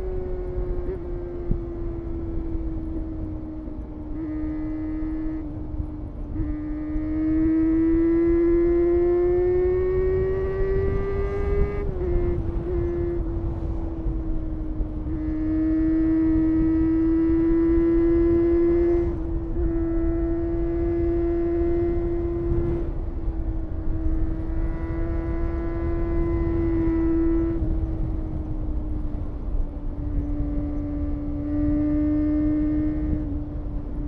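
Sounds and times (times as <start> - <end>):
wind noise rumble: 0.0 - 34.0
motorcycle engine revving high: 6.4 - 13.5, 15.0 - 22.9, 23.8 - 28.4, 30.0 - 34.0.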